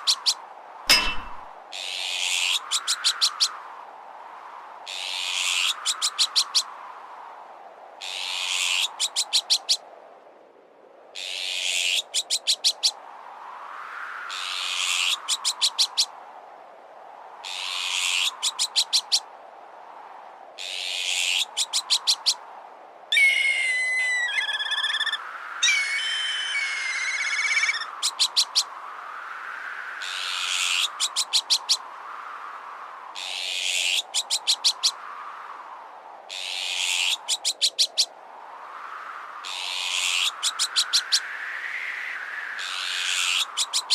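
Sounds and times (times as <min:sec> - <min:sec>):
soft wind: 0:00.0 - 0:43.9
harsh bird alarm calls: 0:23.1 - 0:28.7
whistled trilling bird calls: 0:23.1 - 0:28.7.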